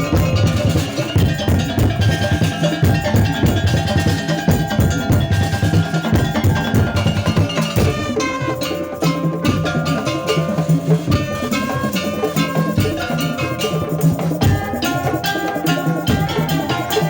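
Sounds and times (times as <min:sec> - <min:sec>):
held melodic notes: 0:00.0 - 0:17.0
percussion ensemble drumming: 0:00.0 - 0:17.0.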